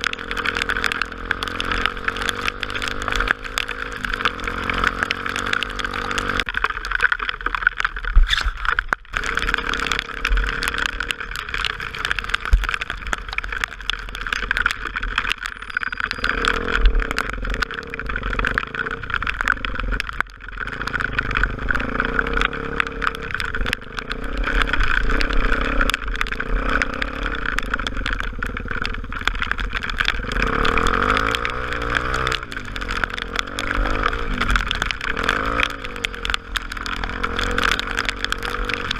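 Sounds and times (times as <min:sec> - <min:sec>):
motorcycle engine running: 0:00.0 - 0:06.5, 0:20.6 - 0:38.9.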